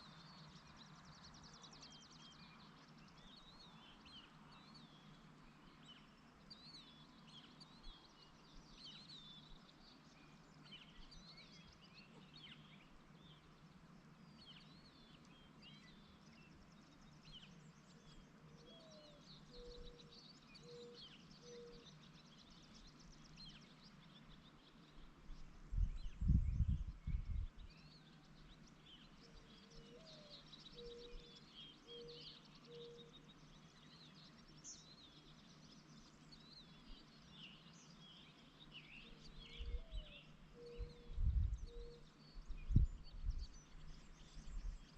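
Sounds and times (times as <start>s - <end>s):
songbirds chirping: 0.0s - 44.9s
low cooing bird call: 18.5s - 22.0s, 29.2s - 33.2s, 39.0s - 43.2s.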